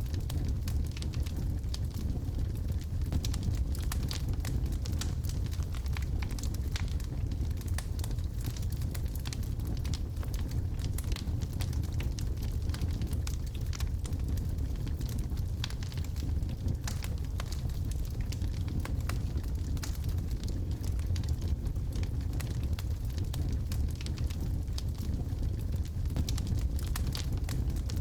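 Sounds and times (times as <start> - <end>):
fire rumbling: 0.0 - 28.0
wood crackling and popping: 0.0 - 28.0.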